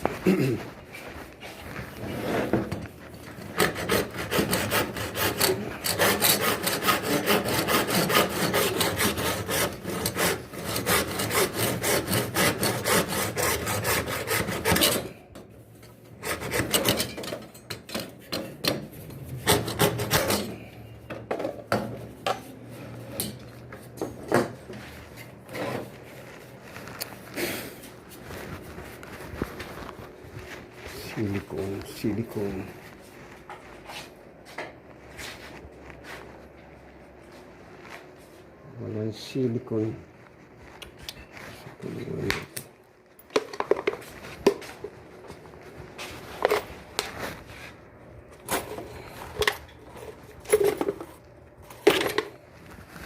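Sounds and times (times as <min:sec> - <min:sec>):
hand scraping strokes: 0:00.0 - 0:15.4, 0:24.7 - 0:42.3, 0:44.0 - 0:51.8.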